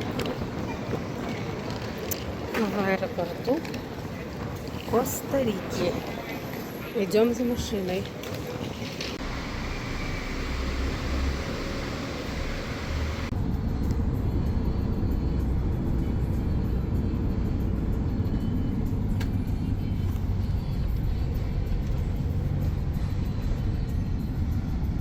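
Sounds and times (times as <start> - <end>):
vehicle engine rumbling: 7.6 - 25.0.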